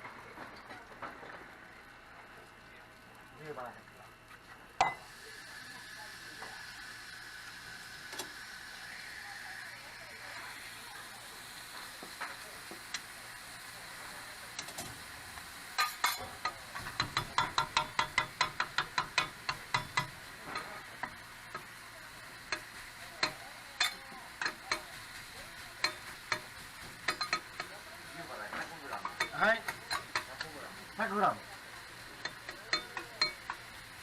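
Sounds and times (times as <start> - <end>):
meat sizzling on grill: 0.0 - 34.0
metal utensils clacking on grill: 14.6 - 15.0, 15.7 - 34.0.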